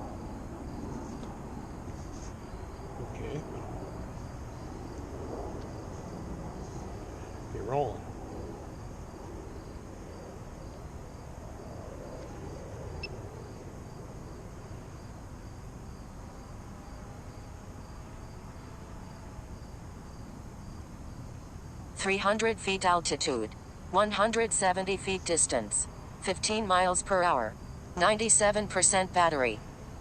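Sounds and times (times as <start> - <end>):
faint cricket trill: 0.0 - 30.0.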